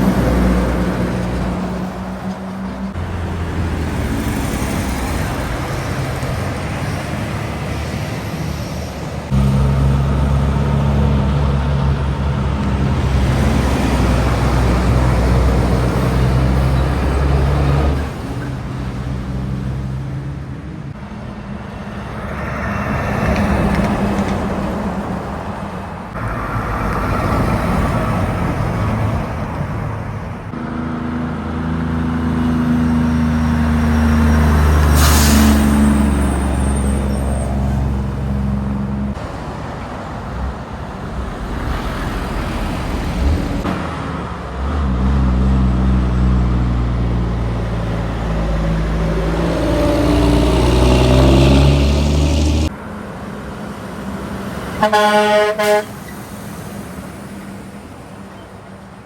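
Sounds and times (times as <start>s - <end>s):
traffic passing on highway: 0.0s - 59.0s
truck air brakes hissing: 34.4s - 38.3s, 55.2s - 57.7s.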